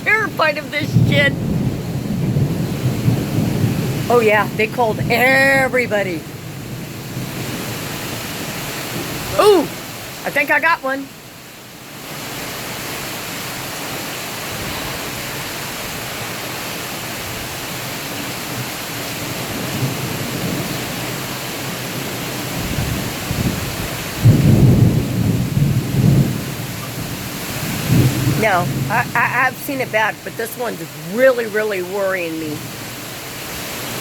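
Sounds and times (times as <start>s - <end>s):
thunder rumbling: 0.0s - 10.8s, 19.3s - 32.6s
heavy rain: 0.0s - 34.0s.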